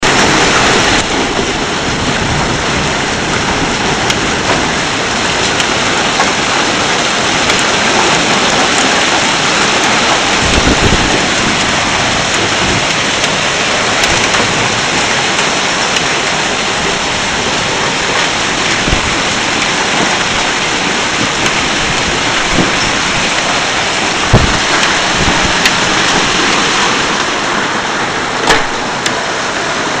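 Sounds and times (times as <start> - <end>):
torrential rain pouring: 0.0 - 30.0
sharp knocks: 28.4 - 29.1.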